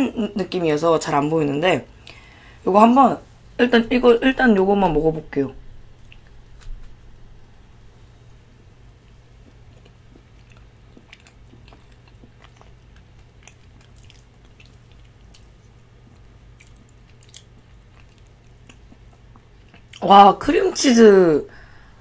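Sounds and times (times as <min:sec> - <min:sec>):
soft chewing sounds: 0:05.8 - 0:20.1.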